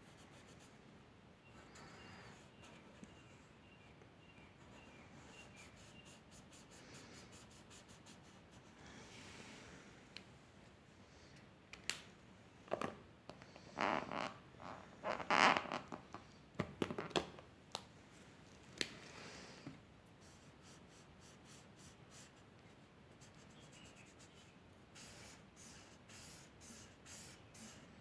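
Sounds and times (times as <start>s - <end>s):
scratchy drawing strokes on paper: 23.2s - 27.8s.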